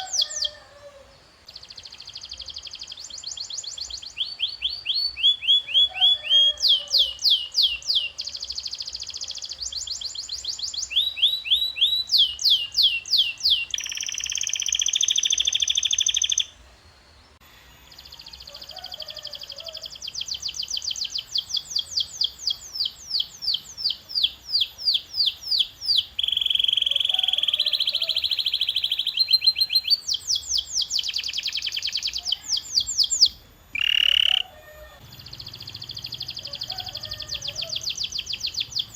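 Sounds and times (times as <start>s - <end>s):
canary singing: 0.0s - 16.6s, 17.8s - 38.9s.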